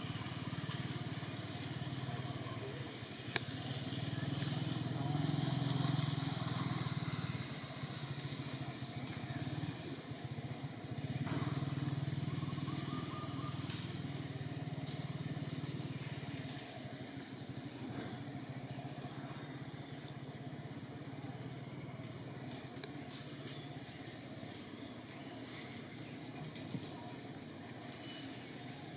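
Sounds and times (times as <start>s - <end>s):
small engine humming: 0.0s - 28.9s.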